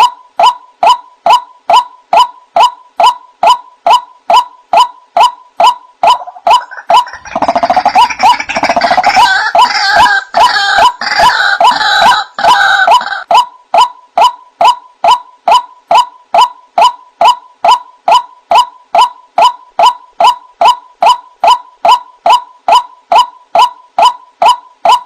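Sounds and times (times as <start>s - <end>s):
waterhen calls: 0.8s - 18.3s.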